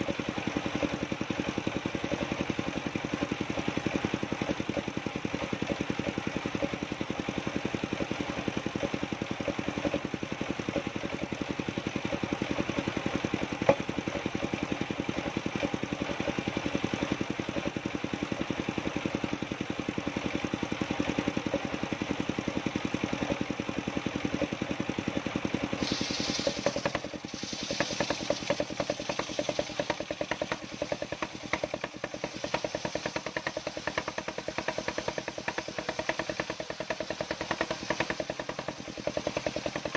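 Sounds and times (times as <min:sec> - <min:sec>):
engine running: 0:00.0 - 0:39.9
hiss: 0:25.6 - 0:39.9.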